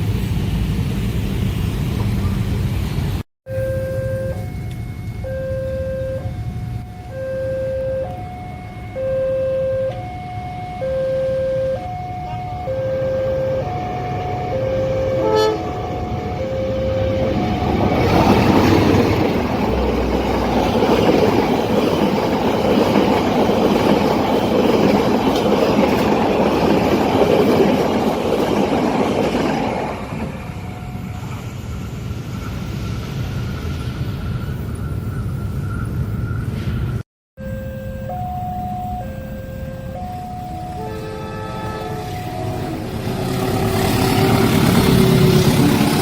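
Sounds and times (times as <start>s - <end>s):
train wheels rumbling on rails: 0.0s - 3.2s, 13.6s - 37.0s, 40.7s - 46.0s
level crossing alarm two tones: 3.5s - 19.3s, 37.4s - 43.1s
train horn toot: 9.0s - 18.7s, 40.6s - 46.0s.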